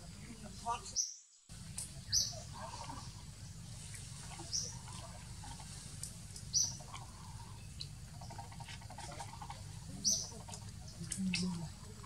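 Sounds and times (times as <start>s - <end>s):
low forest ambience rumble: 0.0s - 12.0s.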